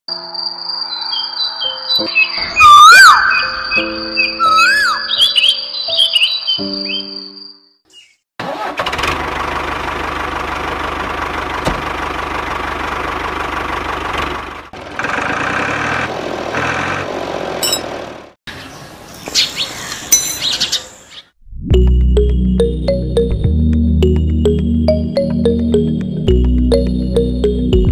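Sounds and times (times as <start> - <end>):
high chirps: 0.1 - 8.2.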